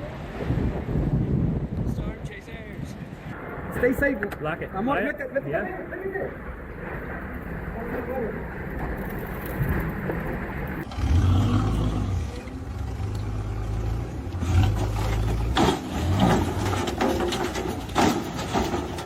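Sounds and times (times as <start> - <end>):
engine humming: 6.8 - 19.0.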